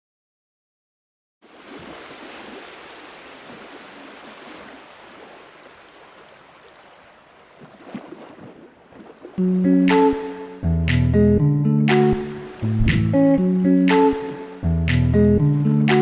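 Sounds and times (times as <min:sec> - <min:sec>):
sea water rushing: 0:01.4 - 0:10.6, 0:11.9 - 0:14.7.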